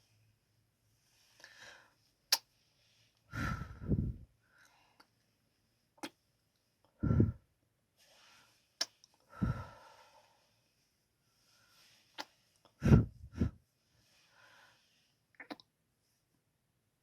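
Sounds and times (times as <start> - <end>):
lip smacks: 15.4 - 15.6.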